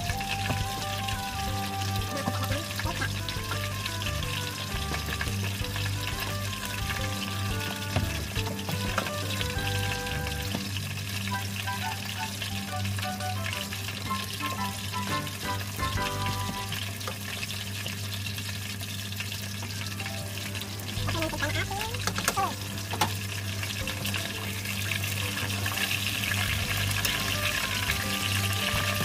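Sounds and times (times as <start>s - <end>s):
background music: 0.0s - 17.0s, 20.0s - 29.0s
food sizzling in hot oil: 0.0s - 29.0s.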